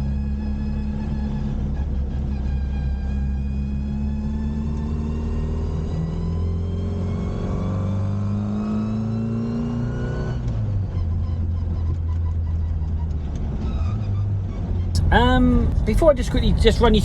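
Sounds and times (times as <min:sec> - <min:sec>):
car engine revving through gears: 0:03.2 - 0:11.4.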